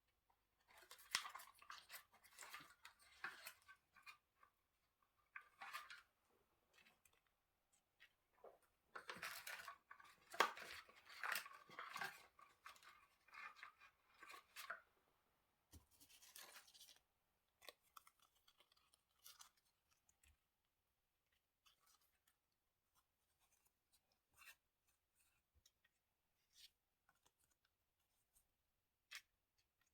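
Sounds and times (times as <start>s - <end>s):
paper rustling and crinkling: 15.8s - 17.0s.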